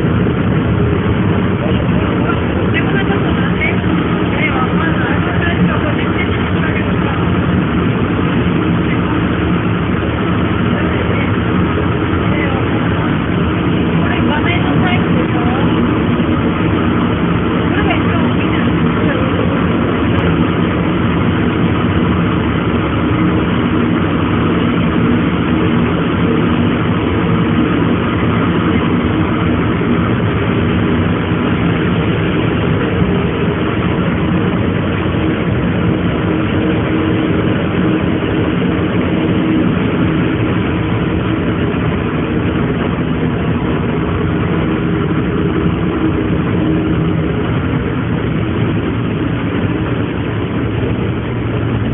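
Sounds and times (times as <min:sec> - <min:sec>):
ferry engines humming: 0:00.0 - 0:51.9.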